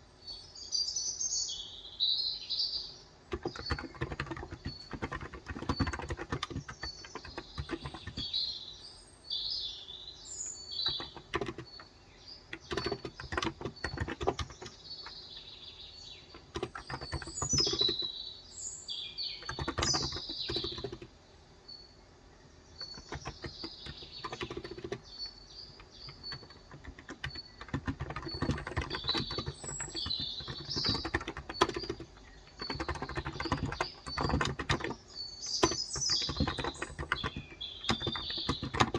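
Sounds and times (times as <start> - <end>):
small birds chirping: 0.0 - 38.9
keyboard typing: 3.3 - 8.4, 10.6 - 15.4, 16.1 - 18.1, 19.4 - 21.1, 22.8 - 38.9.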